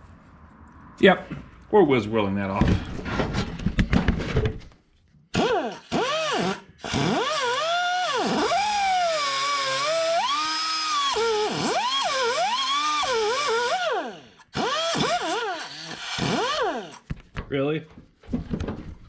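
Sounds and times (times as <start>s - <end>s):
cut-off wheel whining: 5.4s - 17.1s.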